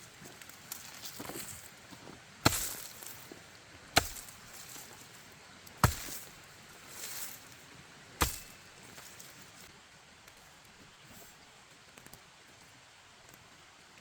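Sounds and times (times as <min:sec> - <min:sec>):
sharp strikes: 0:04.0 - 0:04.8, 0:05.8 - 0:06.3, 0:08.2 - 0:08.6.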